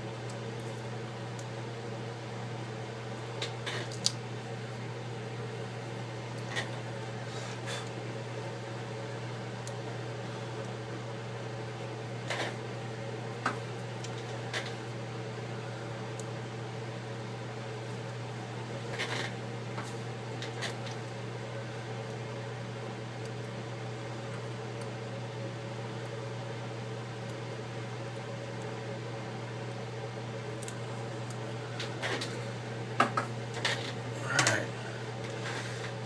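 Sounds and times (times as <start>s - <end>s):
fan humming: 0.0s - 36.0s
light clicks of small tools: 30.6s - 32.2s.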